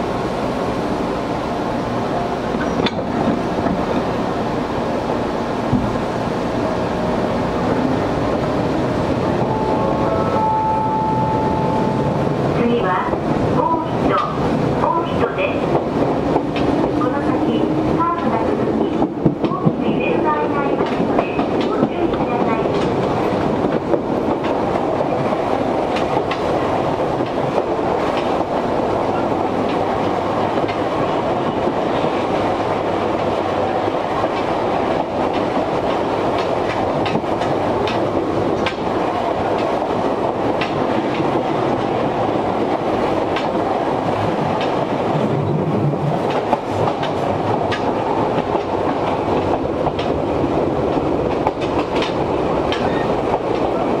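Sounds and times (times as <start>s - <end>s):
train rolling rumble: 0.0s - 54.0s
clicks and clanks from rail joints: 2.6s - 4.1s, 36.3s - 38.9s, 46.2s - 48.0s, 51.3s - 53.8s.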